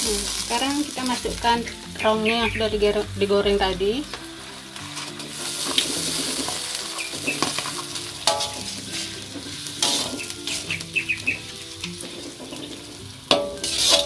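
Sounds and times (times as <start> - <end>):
sauce sizzling in a wok: 0.0 - 14.0
metal spatula scraping a wok: 4.8 - 14.0
spatula clinking against wok: 7.0 - 12.7, 13.3 - 14.0.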